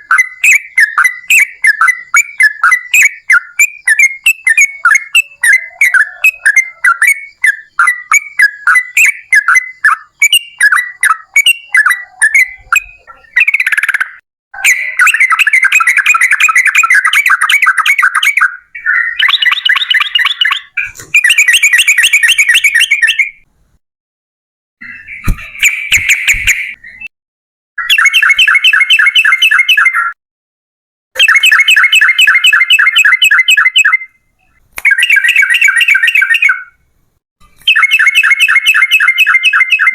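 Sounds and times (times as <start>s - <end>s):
bird chirping: 0.0s - 23.5s, 24.8s - 27.1s, 27.8s - 30.2s, 31.2s - 39.9s
bird chattering rattles: 24.9s - 26.8s.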